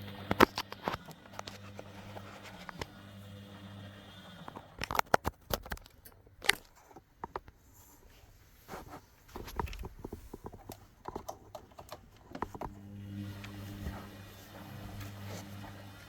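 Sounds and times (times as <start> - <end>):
washing machine humming: 0.0 - 5.0, 10.7 - 16.0
clicks and knocks inside machine: 9.4 - 12.8.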